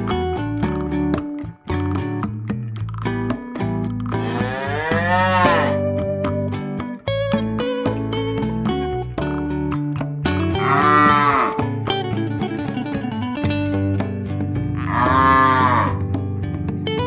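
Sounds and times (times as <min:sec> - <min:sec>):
guitar music: 0:00.0 - 0:17.0
cow mooing: 0:04.2 - 0:05.8, 0:10.6 - 0:11.5, 0:14.8 - 0:16.0.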